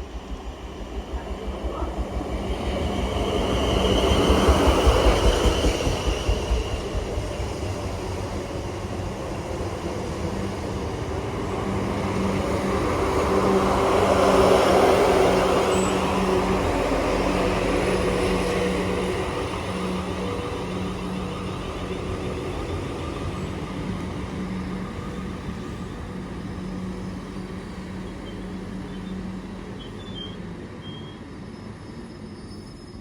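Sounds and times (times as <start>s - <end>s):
steady train hum: 0.0s - 33.0s
train wheels clacking on rails: 0.6s - 8.4s.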